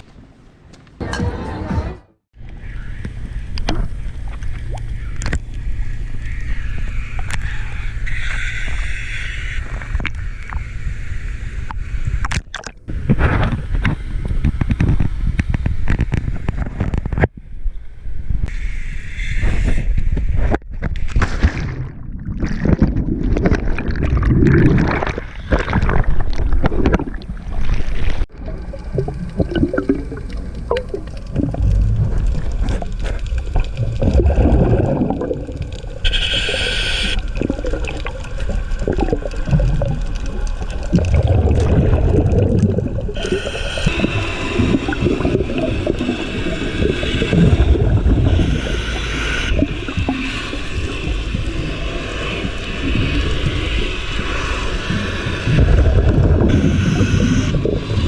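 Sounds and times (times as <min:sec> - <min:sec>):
underwater bubbles gurgling: 0:21.5 - 0:58.0
breathing regulator hiss: 0:36.0 - 0:37.2, 0:43.2 - 0:55.6, 0:56.5 - 0:57.6.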